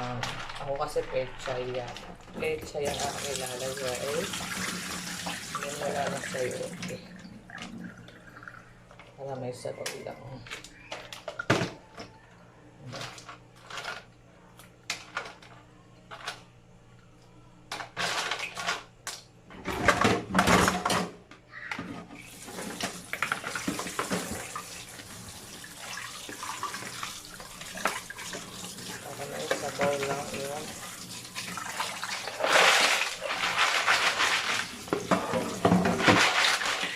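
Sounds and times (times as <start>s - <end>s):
tap water pouring into pot: 2.8s - 8.7s, 22.2s - 32.3s
kitchen clicks and knocks: 19.5s - 21.2s, 33.2s - 36.9s.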